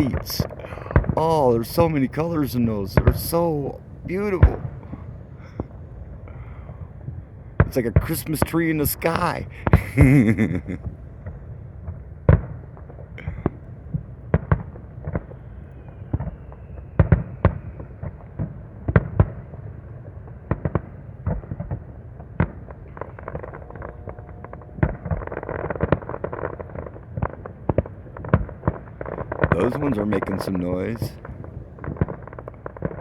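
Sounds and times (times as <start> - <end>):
fireworks bangs: 0.0 - 11.4, 20.5 - 33.0
fireworks crackle: 0.0 - 11.5, 12.3 - 33.0
rumble of distant explosions: 0.0 - 33.0.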